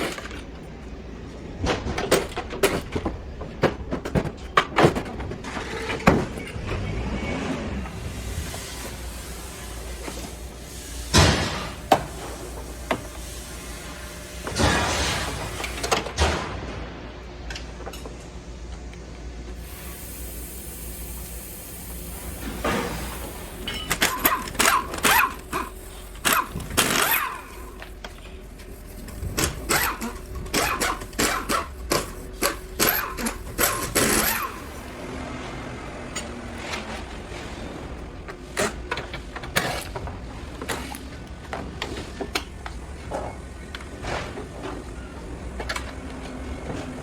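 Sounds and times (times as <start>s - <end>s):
parts scraping: 21.3s - 35.0s.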